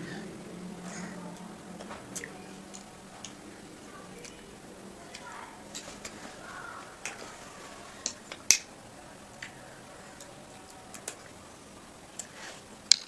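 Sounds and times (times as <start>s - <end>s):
children crunching ice cream cones: 0.0s - 13.0s.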